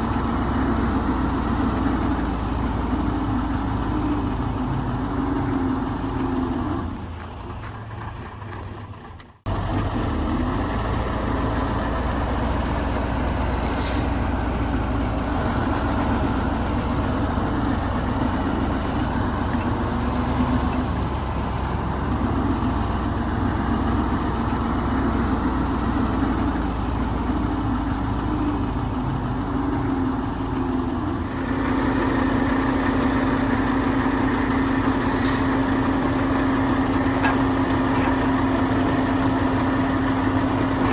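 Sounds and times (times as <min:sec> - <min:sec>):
heavy diesel engine running: 0:00.0 - 0:40.9
short high hisses: 0:13.0 - 0:14.5, 0:34.5 - 0:35.9.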